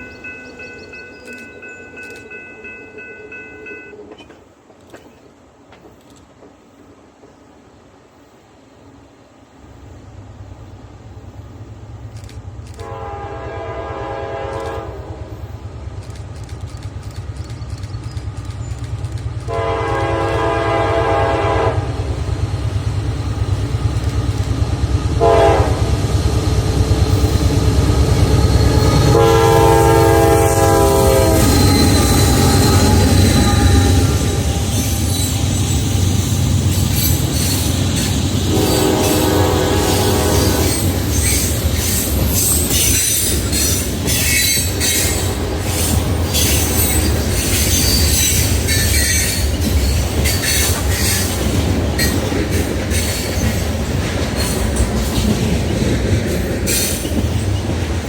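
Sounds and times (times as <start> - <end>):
train wheels clicking over rails: 0.0 - 7.5, 11.4 - 58.0
diesel locomotive engine rumble: 0.0 - 58.0
train horn blasts: 12.7 - 15.6, 19.5 - 22.3, 25.2 - 26.1, 28.2 - 36.0, 38.4 - 41.5.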